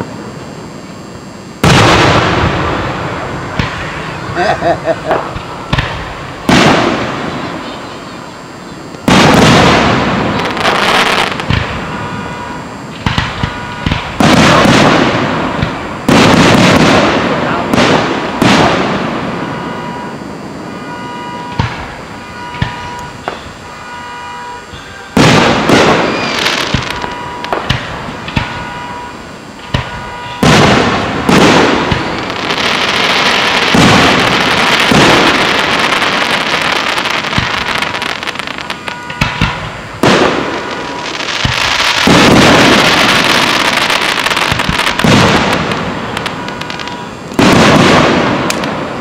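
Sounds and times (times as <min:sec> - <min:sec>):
continuous noisy rush: 0:00.0 - 0:49.0
firework bangs with rumble: 0:01.6 - 0:07.7, 0:09.0 - 0:20.0, 0:25.1 - 0:49.0.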